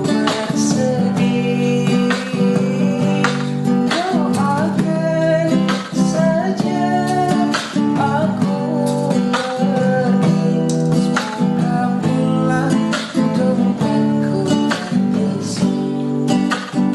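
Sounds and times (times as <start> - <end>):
acoustic guitar strumming chords: 0.0 - 16.9.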